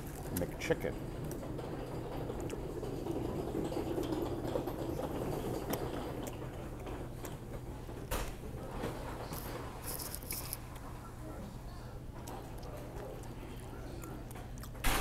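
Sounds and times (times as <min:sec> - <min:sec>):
low room hum: 0:00.0 - 0:15.0
man biting and chewing: 0:12.2 - 0:14.8.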